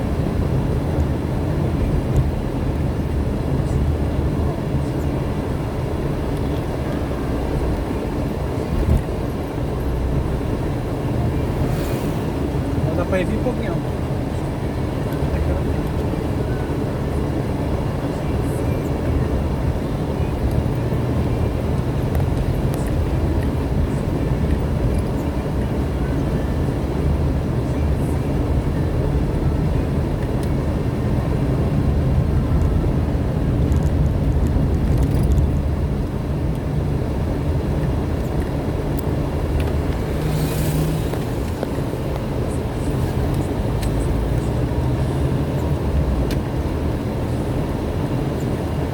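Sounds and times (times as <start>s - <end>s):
car engine and tyre noise: 0.0s - 48.9s.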